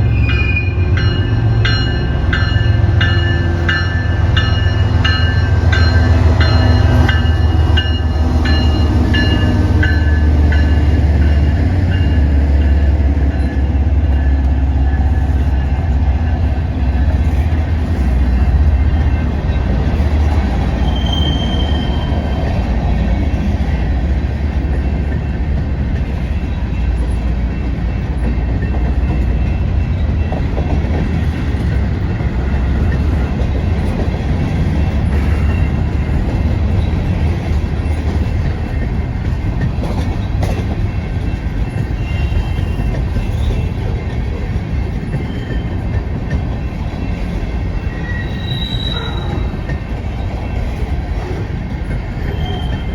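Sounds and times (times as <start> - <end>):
train rumbling past: 0.0 - 52.9
wheel squeals on rails: 20.7 - 22.6, 41.6 - 44.1, 45.0 - 52.9.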